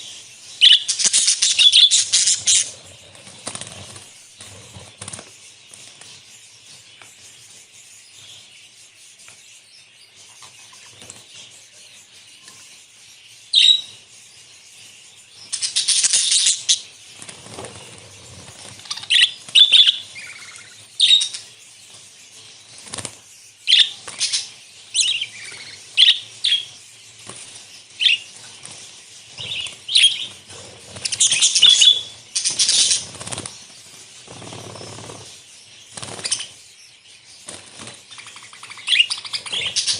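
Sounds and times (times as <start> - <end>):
sharp bird chirps and squawks: 0.0 - 5.8, 10.1 - 14.1, 14.7 - 36.8, 37.4 - 39.9
budgerigars chattering: 0.0 - 7.4, 15.3 - 21.6, 22.2 - 36.8, 37.4 - 39.9.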